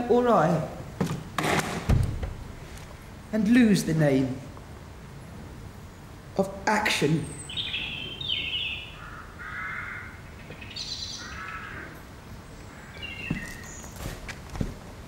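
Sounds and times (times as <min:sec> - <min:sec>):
soft low thuds: 0:01.9 - 0:02.7
harsh cawing bird calls: 0:07.4 - 0:13.9.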